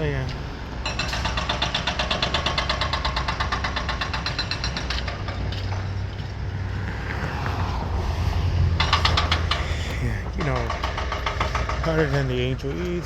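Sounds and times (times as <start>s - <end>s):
diesel engine running: 0.0s - 13.0s
hydraulic breaker pounding concrete: 0.8s - 6.0s, 8.8s - 13.0s.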